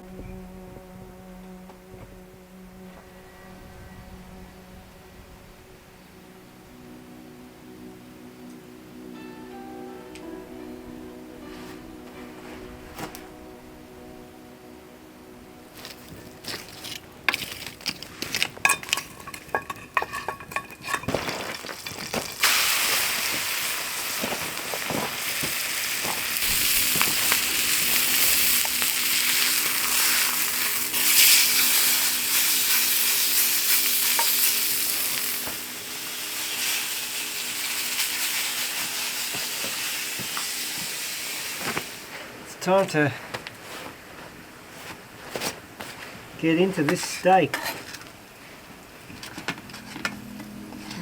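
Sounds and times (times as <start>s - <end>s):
pan clinking and knocking: 17.3s - 22.5s
meat sizzling in a frying pan: 21.5s - 42.1s.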